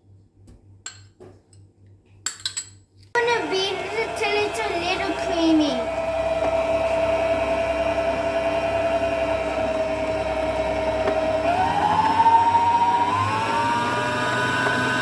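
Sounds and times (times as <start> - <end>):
stand mixer motor whine: 3.2 - 15.0.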